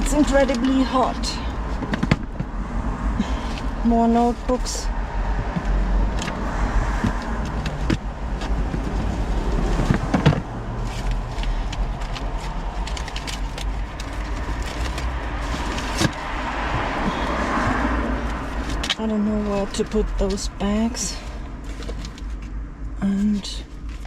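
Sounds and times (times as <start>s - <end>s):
road traffic rumble: 0.0s - 24.0s
papers rustling and tapping: 5.5s - 17.4s.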